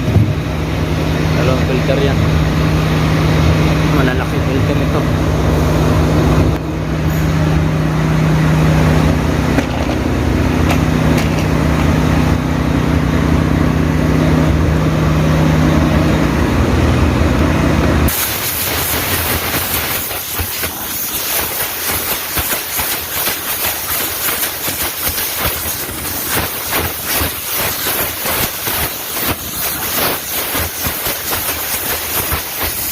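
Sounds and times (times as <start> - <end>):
machine hum with low drone: 0.0 - 32.9
rough fluttering hiss: 18.1 - 32.9.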